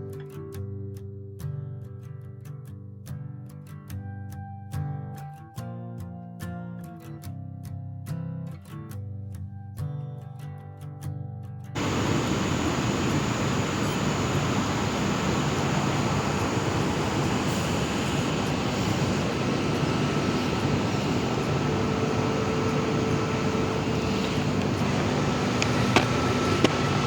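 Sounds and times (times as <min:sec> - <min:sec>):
rushing noise with low hum: 0:11.8 - 0:27.0.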